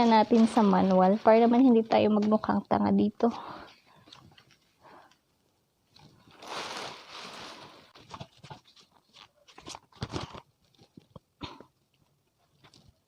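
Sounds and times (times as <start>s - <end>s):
paper pages rustling: 0.0s - 2.6s, 5.9s - 11.2s.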